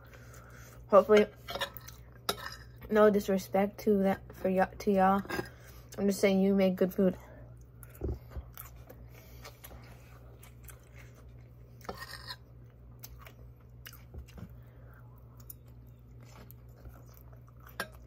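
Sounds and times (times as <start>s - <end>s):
person chewing food: 7.5s - 18.0s.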